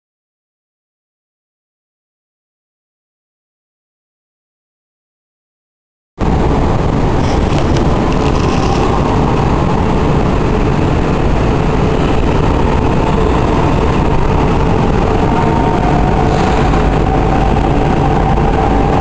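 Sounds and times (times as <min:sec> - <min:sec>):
train rumbling on tracks: 0:06.2 - 0:19.0.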